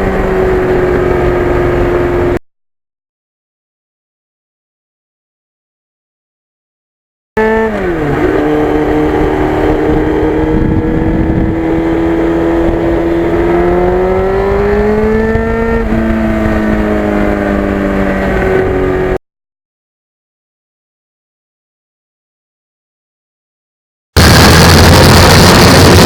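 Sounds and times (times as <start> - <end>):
motorcycle engine revving: 0.0 - 2.4, 7.4 - 19.2, 24.2 - 26.0.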